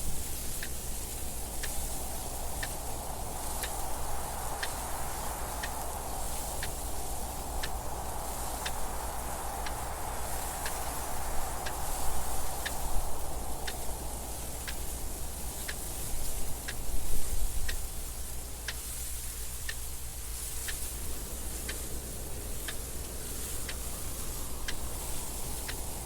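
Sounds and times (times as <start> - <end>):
wind noise: 0.0 - 26.0
clock ticking: 13.6 - 13.9, 16.5 - 16.8, 22.6 - 26.0.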